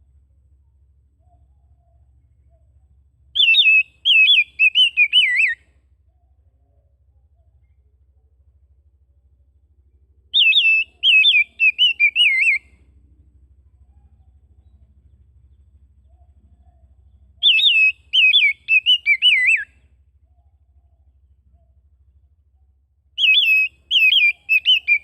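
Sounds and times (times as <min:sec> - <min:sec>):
songbird whistling: 0:01.2 - 0:08.0, 0:10.2 - 0:12.9, 0:13.8 - 0:21.9, 0:22.6 - 0:25.0.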